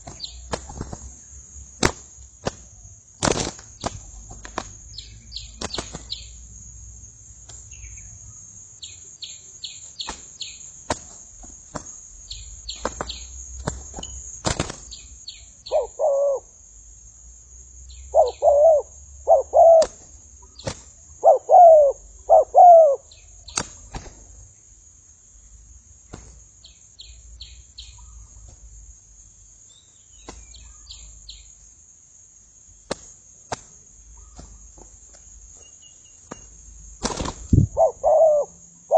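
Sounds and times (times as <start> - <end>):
small birds chirping: 0.0 - 1.6, 2.7 - 6.5, 7.4 - 16.5, 17.8 - 31.7, 33.7 - 38.9
steady high-pitched hiss: 0.0 - 38.9
doves cooing: 15.7 - 16.5, 18.1 - 20.0, 21.1 - 23.1, 37.1 - 38.9.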